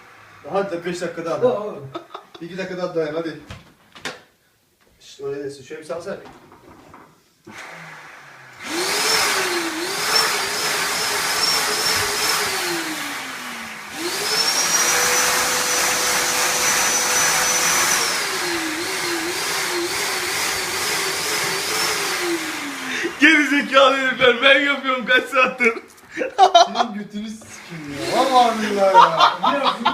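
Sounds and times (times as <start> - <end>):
vacuum cleaner motor whining: 7.5 - 24.4, 27.4 - 29.8.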